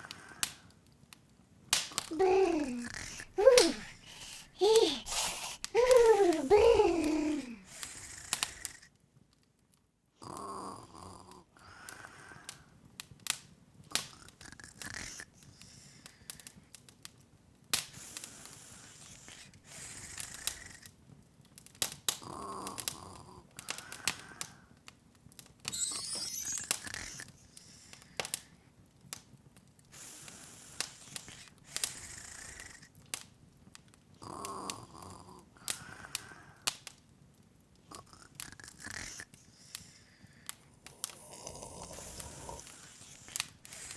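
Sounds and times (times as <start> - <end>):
wood fire crackling and popping: 0.0 - 4.2, 5.6 - 9.9, 12.5 - 32.0, 32.6 - 34.8, 35.7 - 43.9
soft breathy sound: 2.0 - 8.9, 34.2 - 36.7, 37.9 - 43.9
short rising shimmer: 25.7 - 26.8.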